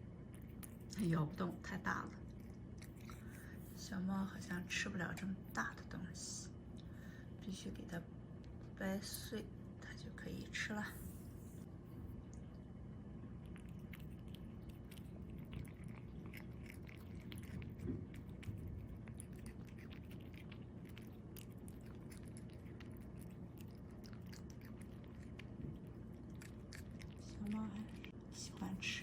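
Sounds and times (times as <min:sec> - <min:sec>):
low steady hum: 0:00.0 - 0:29.0
cat chewing with crunching clicks: 0:00.1 - 0:03.8, 0:12.2 - 0:29.0.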